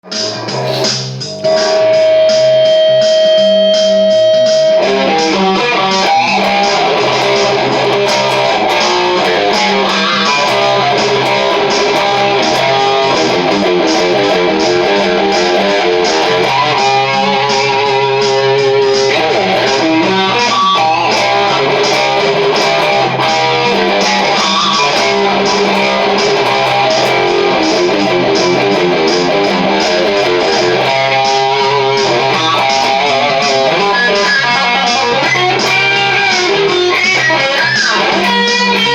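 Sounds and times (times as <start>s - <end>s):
drum beat: 0.0s - 38.9s
electric guitar soloing: 0.0s - 38.9s
looping bass line: 0.0s - 38.9s.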